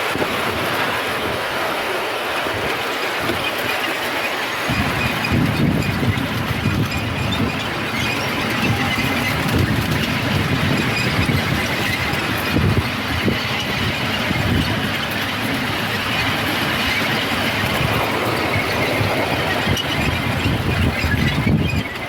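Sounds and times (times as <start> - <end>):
rumble of wheels on rail: 0.0 - 22.0.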